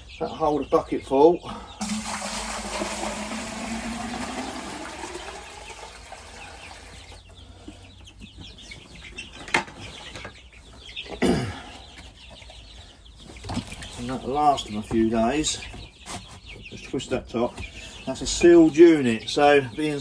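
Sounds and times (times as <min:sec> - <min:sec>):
chicks peeping: 0:00.0 - 0:01.8, 0:03.8 - 0:20.0
water pouring into a drinker: 0:01.8 - 0:07.2.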